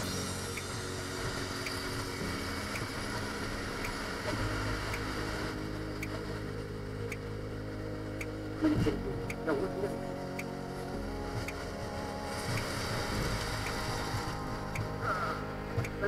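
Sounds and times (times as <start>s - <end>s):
light ticking: 0.0s - 16.0s
wind rushing: 11.2s - 16.0s.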